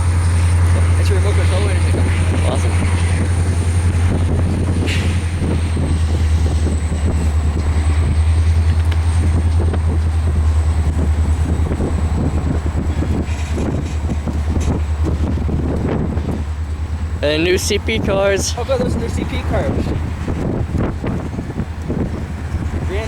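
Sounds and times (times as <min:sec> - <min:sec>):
diesel locomotive throbbing: 0:00.0 - 0:23.0.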